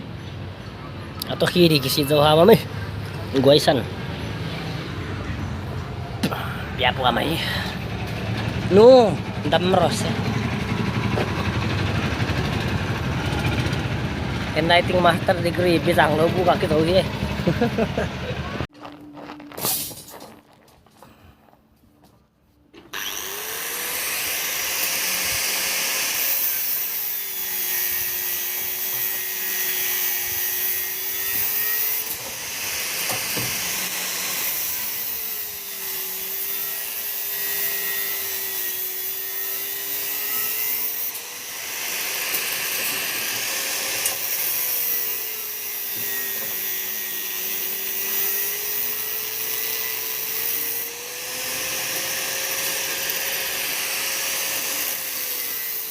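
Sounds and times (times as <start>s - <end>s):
electric power tool motor: 22.8s - 55.9s.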